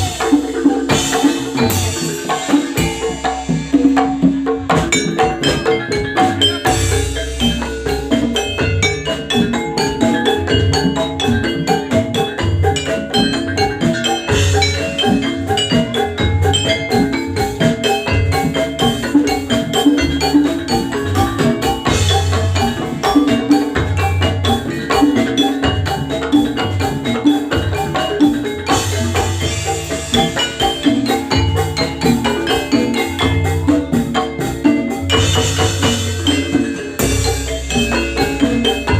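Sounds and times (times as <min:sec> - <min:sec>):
low drum beat: 0:00.0 - 0:05.6
metallophones striking rhythmic notes: 0:00.0 - 0:38.9.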